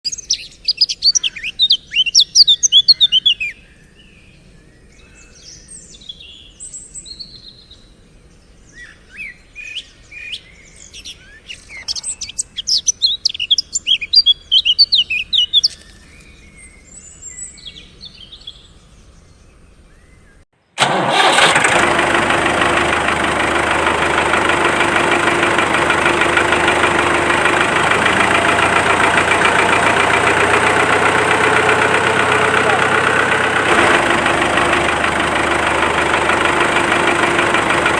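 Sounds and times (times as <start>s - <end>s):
small birds chirping: 0.0s - 20.4s, 22.9s - 37.9s
small motor running: 21.1s - 37.9s.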